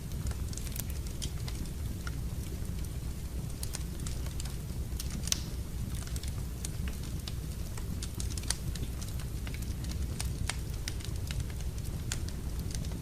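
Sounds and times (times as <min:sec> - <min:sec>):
wood fire crackling and popping: 0:00.0 - 0:13.0.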